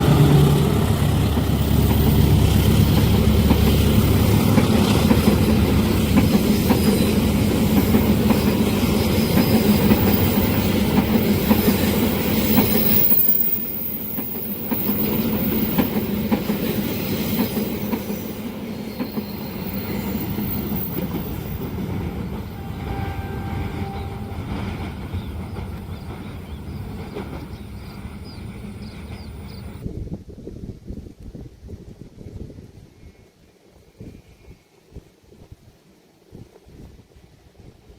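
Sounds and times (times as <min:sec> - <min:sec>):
wheels clattering on rails: 0:00.0 - 0:29.8
train passing at speed: 0:00.0 - 0:29.9.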